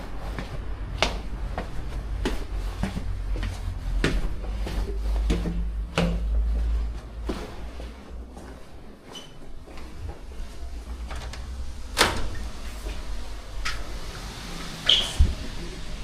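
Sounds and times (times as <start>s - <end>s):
low rumble: 9.9s - 16.0s.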